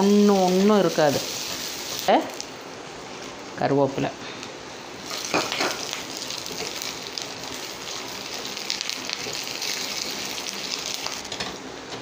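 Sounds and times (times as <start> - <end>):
food sizzling in hot oil: 0.0 - 2.6, 5.0 - 11.5.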